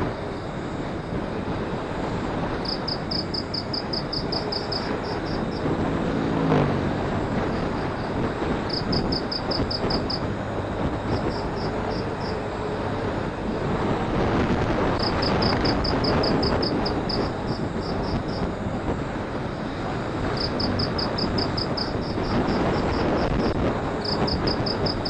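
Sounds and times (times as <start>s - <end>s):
pitched hum: 0.0s - 25.0s
wind noise: 0.0s - 25.0s
motorcycle engine: 4.0s - 23.9s.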